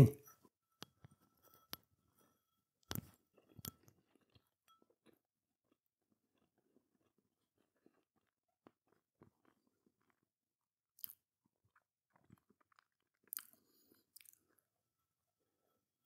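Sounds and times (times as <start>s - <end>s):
chewing: 2.2s - 10.3s, 11.0s - 14.7s.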